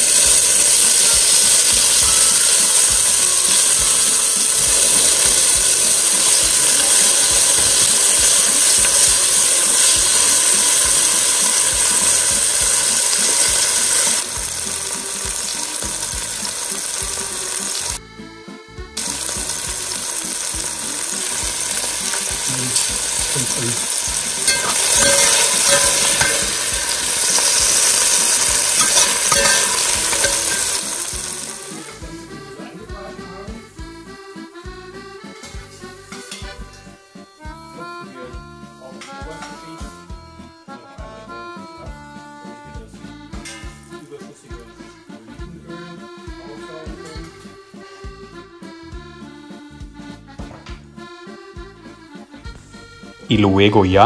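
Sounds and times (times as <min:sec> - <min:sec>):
peppers sizzling in hot oil: 0:00.0 - 0:18.0, 0:19.0 - 0:32.9, 0:35.3 - 0:36.8, 0:43.4 - 0:44.2.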